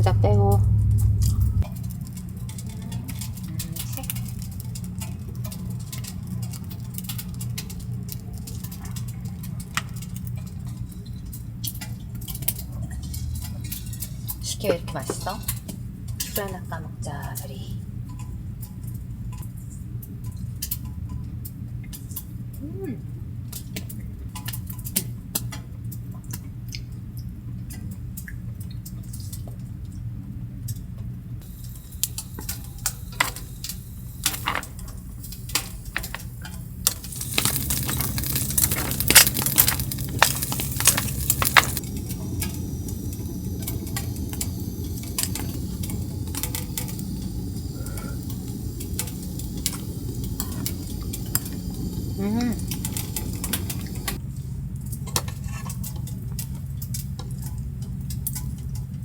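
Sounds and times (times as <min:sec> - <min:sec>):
steady low hum: 0:00.0 - 0:11.6, 0:31.4 - 0:55.1
hissing noise with clicks: 0:31.4 - 0:54.2.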